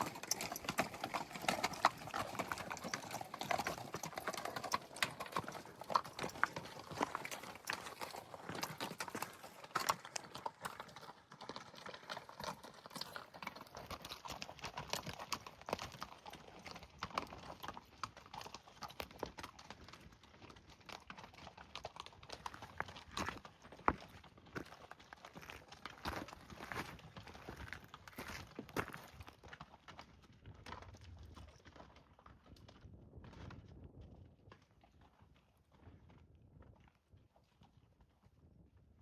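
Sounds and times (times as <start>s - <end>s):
footsteps on rocky ground: 25.4s - 29.1s.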